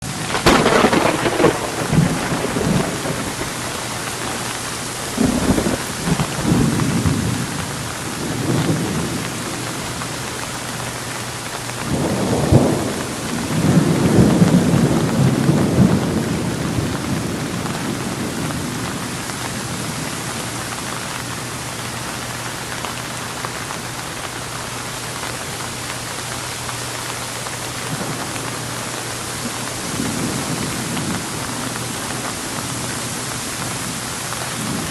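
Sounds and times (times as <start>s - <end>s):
thunder claps and rumbles: 0.0s - 10.4s, 11.6s - 21.0s, 27.8s - 34.9s
steady rain: 0.0s - 34.9s.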